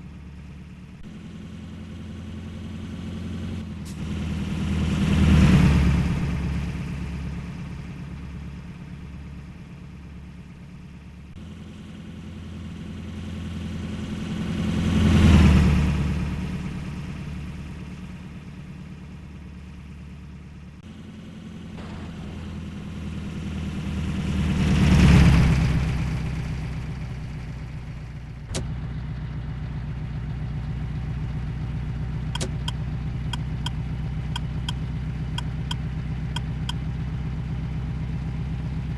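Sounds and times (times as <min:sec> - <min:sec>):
steady engine: 0:00.0 - 0:38.9
heavy trucks driving past: 0:20.8 - 0:31.4.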